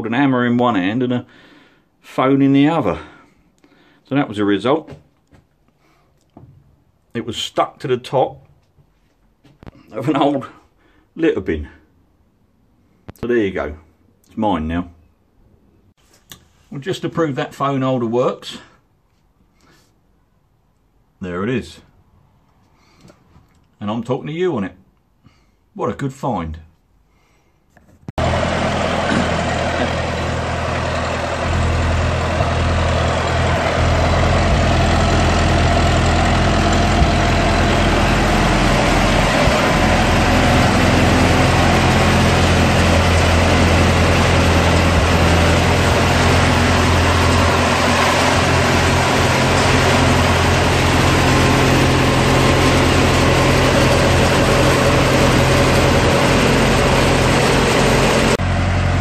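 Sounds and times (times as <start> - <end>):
car engine idling: 28.2 - 59.0.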